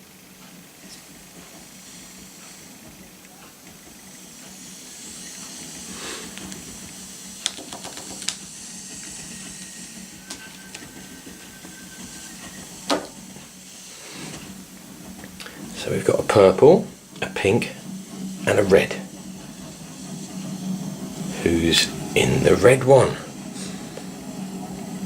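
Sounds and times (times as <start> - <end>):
toy train running on track: 0.0 - 25.0.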